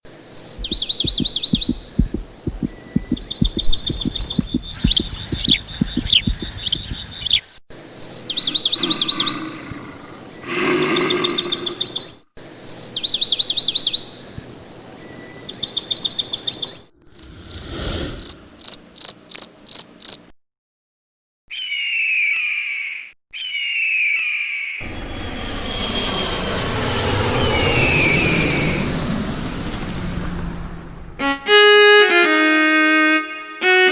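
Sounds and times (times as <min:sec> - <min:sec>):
birds trilling: 0:00.2 - 0:17.3
bird falling calls: 0:00.3 - 0:07.5, 0:08.2 - 0:12.2.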